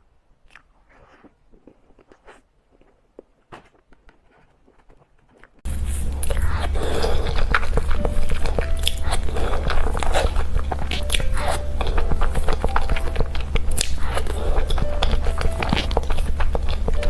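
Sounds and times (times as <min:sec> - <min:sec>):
wet chewing and smacking: 0:00.5 - 0:17.0
lip and tongue clicks: 0:04.6 - 0:17.0
steady low hum: 0:05.7 - 0:17.0.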